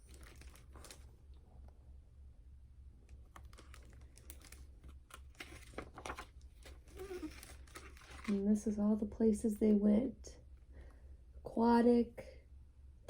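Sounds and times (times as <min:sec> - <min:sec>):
book pages rustling: 0:00.0 - 0:01.2, 0:03.1 - 0:08.6
light clicks of book handling: 0:03.1 - 0:08.4.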